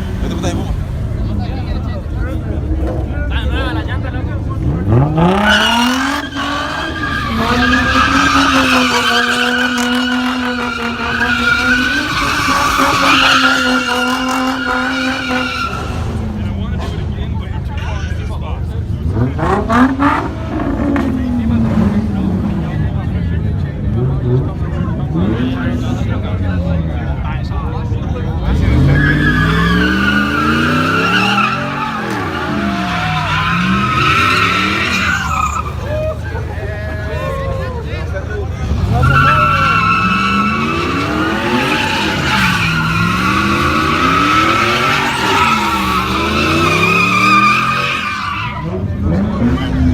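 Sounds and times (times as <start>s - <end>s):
car engine revving: 0.0s - 37.0s, 38.0s - 49.9s
tyres squealing: 5.4s - 16.2s, 28.6s - 37.6s, 38.7s - 48.9s.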